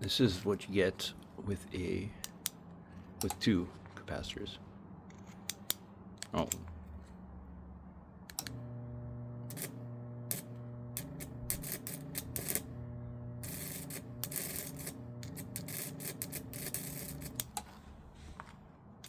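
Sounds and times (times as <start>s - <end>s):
transformer humming: 5.4s - 18.2s
high-voltage sparks crackling: 9.4s - 12.7s, 13.4s - 17.5s.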